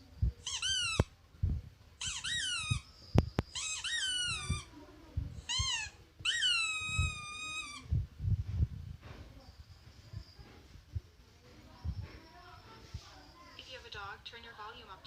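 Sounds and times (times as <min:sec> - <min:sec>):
squeaky toy squeaks from phone: 0:00.4 - 0:01.1, 0:02.0 - 0:04.7, 0:05.5 - 0:07.9.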